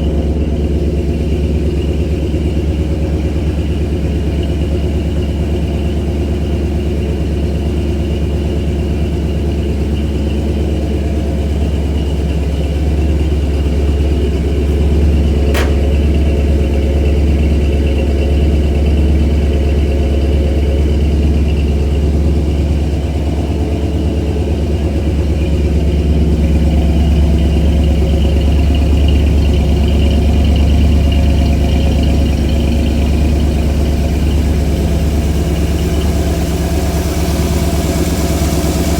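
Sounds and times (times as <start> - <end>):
car engine idling: 0.0 - 38.9
sharp click: 15.5 - 16.1.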